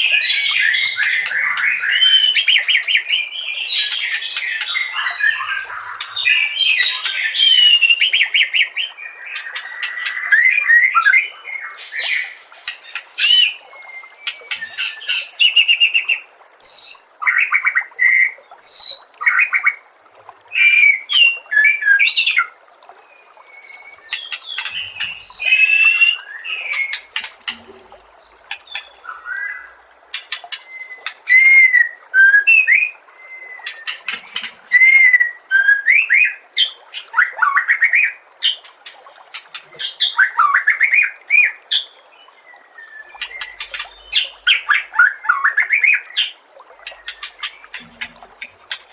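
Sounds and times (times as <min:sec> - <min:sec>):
bird singing whistled phrases: 0:23.6 - 0:27.1, 0:30.7 - 0:36.4.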